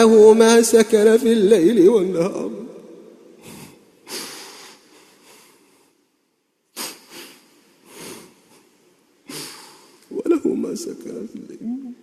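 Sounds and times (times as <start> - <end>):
man breathing through nose: 3.4 - 5.9, 6.8 - 8.6, 9.3 - 10.0.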